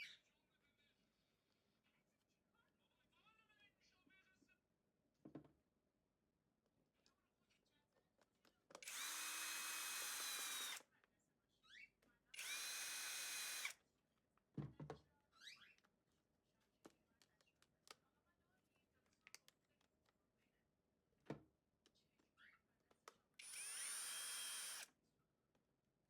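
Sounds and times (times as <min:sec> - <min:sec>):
small electric motor whining: 0:08.8 - 0:10.8, 0:12.4 - 0:13.7, 0:23.4 - 0:24.9.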